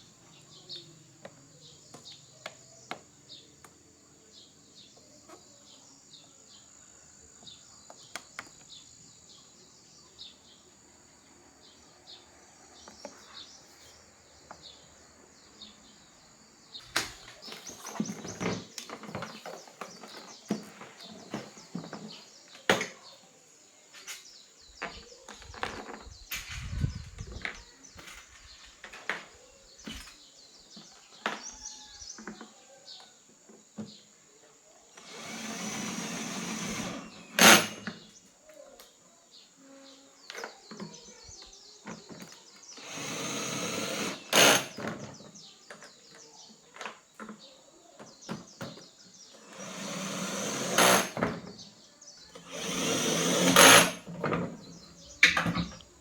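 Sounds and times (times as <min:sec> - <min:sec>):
small motor running: 0:35.0 - 0:37.8, 0:42.8 - 0:44.8, 0:49.4 - 0:51.2, 0:52.4 - 0:54.0.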